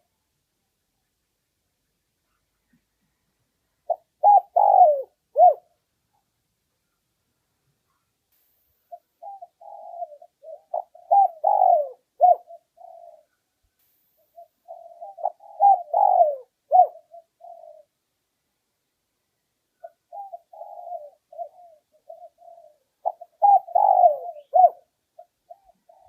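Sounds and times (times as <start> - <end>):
dove cooing: 3.8 - 5.8, 8.9 - 13.4, 14.2 - 18.0, 19.8 - 26.0.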